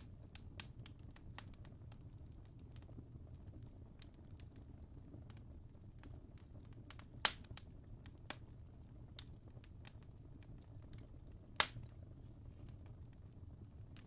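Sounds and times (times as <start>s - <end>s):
sharp pops of fire: 0.0s - 3.0s, 5.2s - 8.5s, 9.1s - 12.0s
fire crackling: 0.0s - 14.0s.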